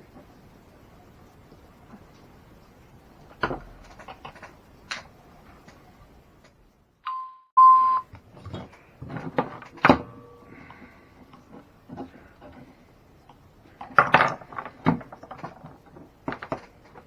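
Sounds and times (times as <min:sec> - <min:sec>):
small hard parts clicking: 0:03.2 - 0:05.8, 0:08.1 - 0:17.0
short electronic beeps: 0:07.1 - 0:08.1.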